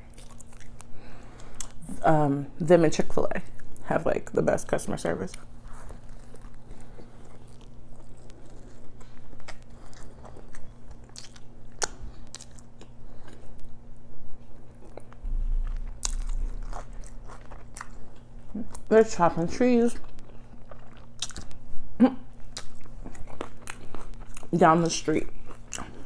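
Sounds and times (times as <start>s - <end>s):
person biting and chewing food: 0.0s - 1.8s, 5.4s - 13.8s, 14.6s - 18.9s, 20.1s - 21.7s, 22.4s - 24.5s, 25.3s - 26.0s.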